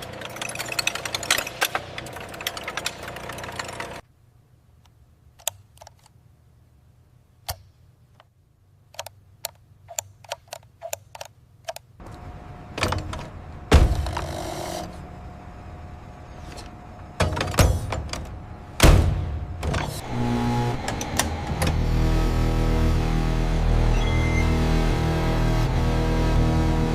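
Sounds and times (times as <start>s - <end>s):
mechanical running noise: 0.0s - 4.0s, 12.0s - 18.8s, 19.6s - 24.8s
sharp mechanical clicks: 5.4s - 6.1s
heavy clunks: 12.0s - 15.0s, 16.4s - 21.8s.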